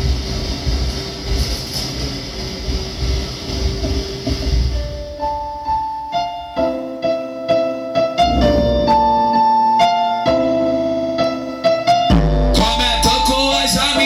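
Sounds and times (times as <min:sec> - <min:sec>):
electric piano funk music: 0:03.0 - 0:14.0
deep bass swell: 0:08.2 - 0:09.5.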